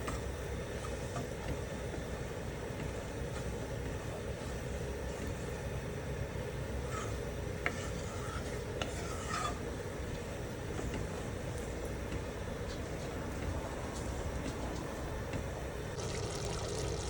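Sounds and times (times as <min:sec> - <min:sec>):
steady low hum: 0:00.0 - 0:17.0
utensil scraping a cooking pan: 0:06.8 - 0:09.8.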